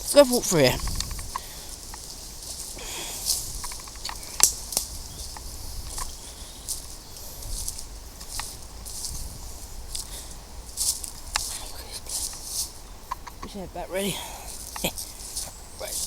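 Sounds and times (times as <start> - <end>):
footsteps through undergrowth: 0.0 - 16.0
vegetation crackling and rustling: 0.0 - 16.0.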